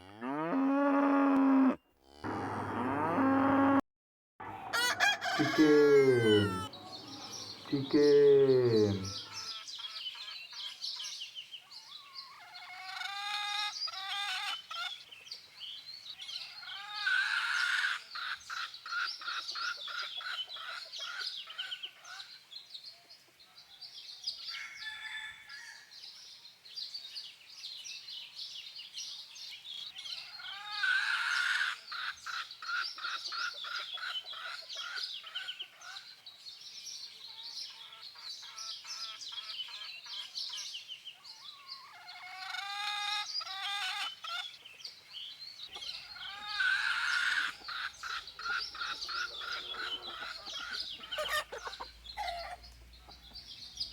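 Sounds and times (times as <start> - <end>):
chickens clucking and cackling: 4.4 - 10.7, 12.3 - 15.2, 16.4 - 22.4, 30.2 - 36.1, 41.8 - 44.8, 45.7 - 53.9.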